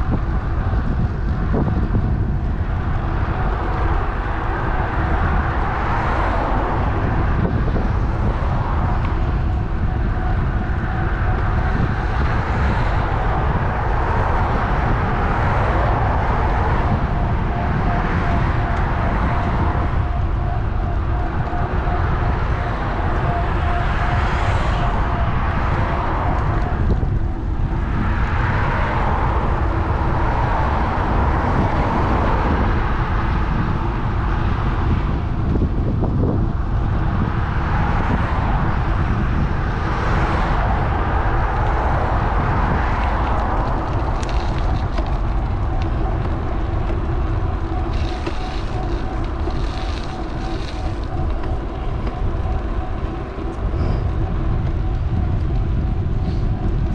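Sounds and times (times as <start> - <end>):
road traffic passing: 0.0 - 56.9
wind rumbling on microphone: 0.0 - 56.9.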